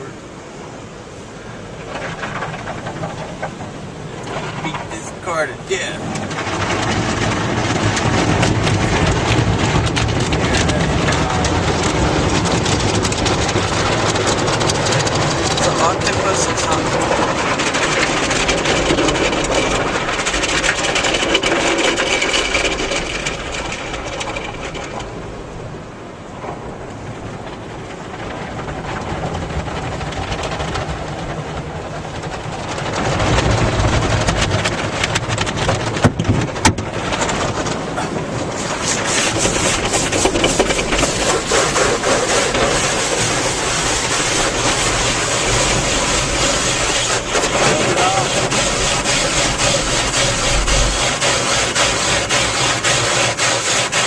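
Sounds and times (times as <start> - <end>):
car wash spray and brushes: 0.0 - 54.0
rapid patter on car: 0.0 - 54.0
sharp knocks: 33.9 - 54.0.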